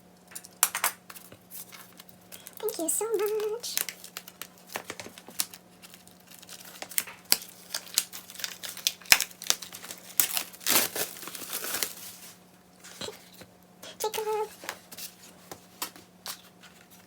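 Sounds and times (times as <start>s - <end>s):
packaging crinkling and rustling: 1.1s - 13.4s.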